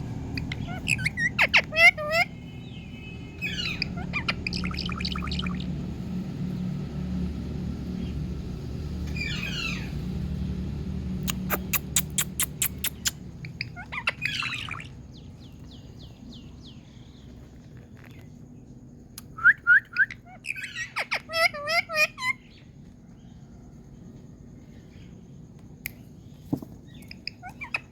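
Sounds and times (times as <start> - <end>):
steady low hum: 0.0 - 27.9
parrot calling: 0.3 - 5.8, 9.1 - 10.1, 11.2 - 15.6, 19.4 - 22.7, 26.9 - 27.9.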